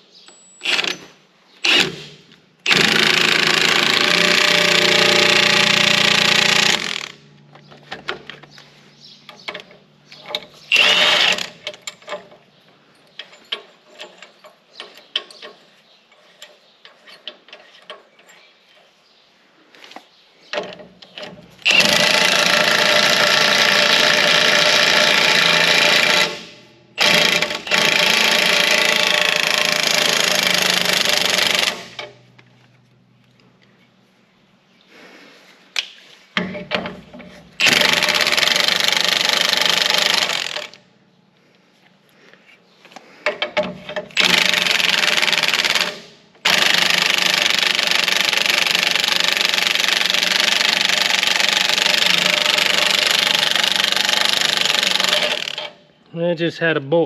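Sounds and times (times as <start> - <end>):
impact wrench running: 1.6 - 7.3, 10.7 - 11.8, 21.2 - 32.2, 36.8 - 40.8, 43.8 - 55.8.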